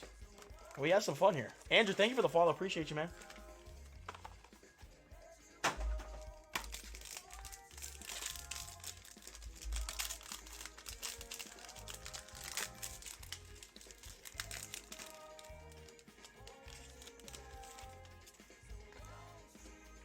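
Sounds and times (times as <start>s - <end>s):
background music: 0.0s - 20.0s
foil wrappers crinkling and tearing: 6.5s - 18.4s.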